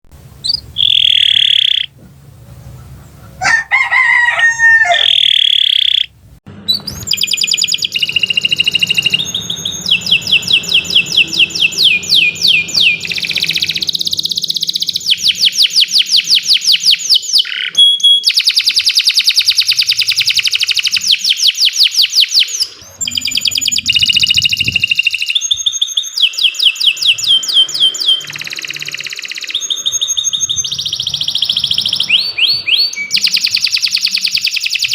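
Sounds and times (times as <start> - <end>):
lower coarse bird call: 0.4 - 1.9, 2.7 - 6.1
canary singing trills: 0.4 - 6.1, 6.7 - 34.9.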